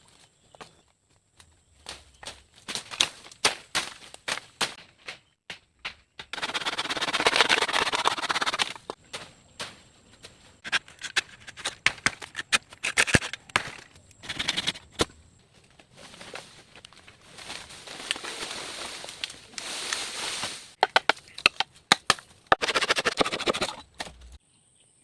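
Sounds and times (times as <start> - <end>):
rasping scrape: 6.4 - 9.0, 10.6 - 13.4, 22.5 - 23.8
sharp knocks and clicks: 20.8 - 24.2.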